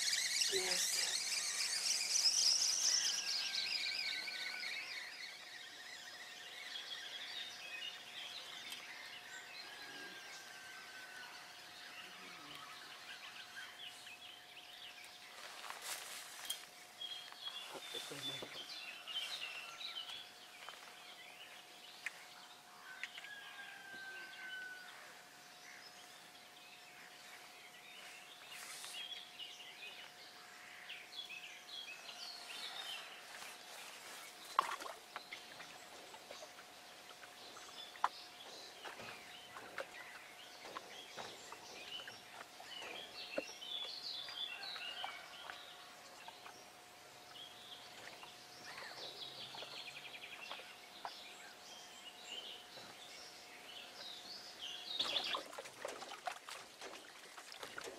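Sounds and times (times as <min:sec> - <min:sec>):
faint bird chirps: 0:00.0 - 0:11.2.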